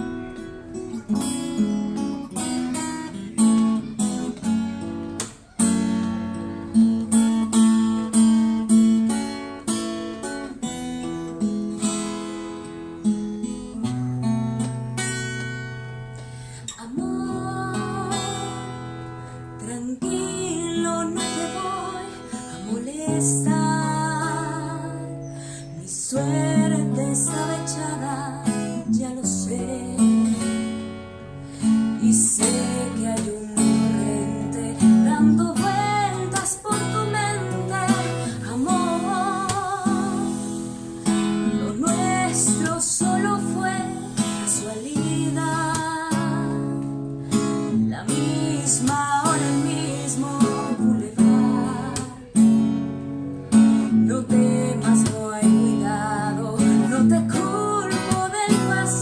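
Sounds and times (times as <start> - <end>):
strummed acoustic guitar: 0.0 - 59.0
person singing a slow ballad: 16.0 - 59.0.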